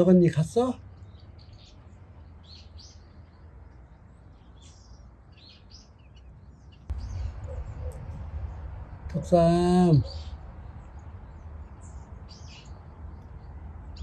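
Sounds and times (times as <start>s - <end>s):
small birds chirping: 0.0s - 14.0s
low rumble: 6.9s - 9.6s.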